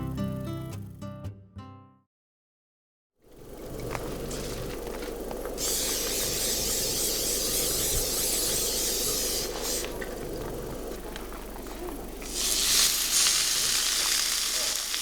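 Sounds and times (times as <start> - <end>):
food sizzling in a pan: 12.3 - 15.0.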